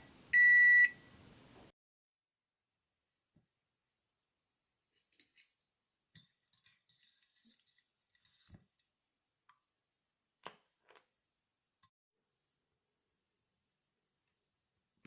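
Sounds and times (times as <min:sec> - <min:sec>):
small tools clicking and scraping: 0:06.2 - 0:08.9.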